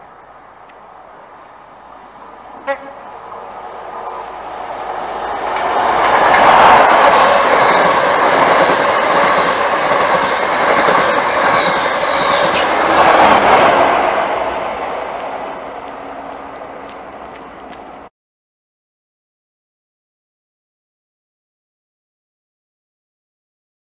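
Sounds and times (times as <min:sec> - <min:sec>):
train passing at speed: 0:00.0 - 0:18.1.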